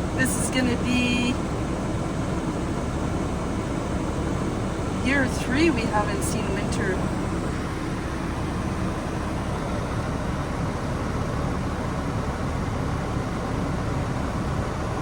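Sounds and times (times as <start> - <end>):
heater fan blowing: 0.0 - 15.0
van engine idling: 0.0 - 15.0.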